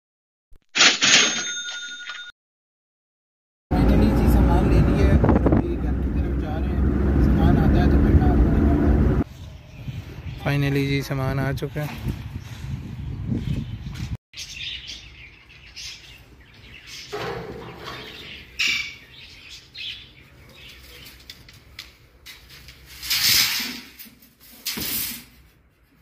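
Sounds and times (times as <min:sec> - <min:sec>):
birds chirping and calling: 0:09.2 - 0:21.6.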